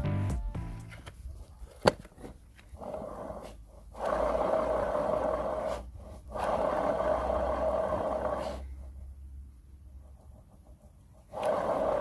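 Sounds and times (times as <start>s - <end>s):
worn bearings grinding: 2.6s - 8.6s, 11.2s - 12.0s.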